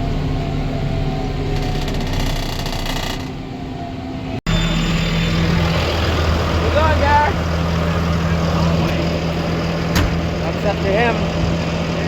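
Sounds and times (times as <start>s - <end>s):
rattling clatter: 1.4s - 3.4s
tractor engine running: 4.5s - 12.0s.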